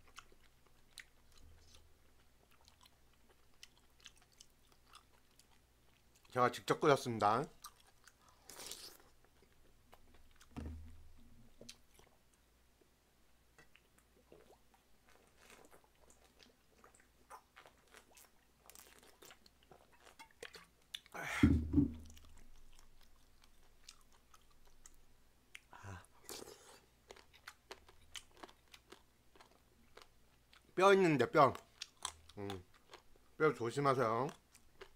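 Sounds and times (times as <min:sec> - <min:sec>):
close chewing: 0:00.0 - 0:06.4, 0:07.4 - 0:10.5, 0:13.6 - 0:21.2, 0:22.0 - 0:30.8.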